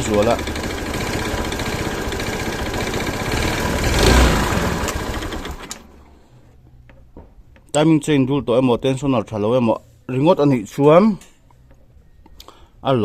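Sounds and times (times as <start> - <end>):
scooter engine revving: 0.0 - 6.0.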